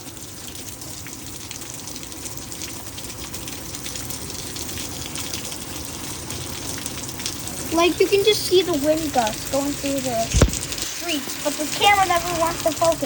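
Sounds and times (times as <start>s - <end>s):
raindrops ticking on surfaces: 0.0s - 13.0s
heavy rain hissing: 7.4s - 13.0s.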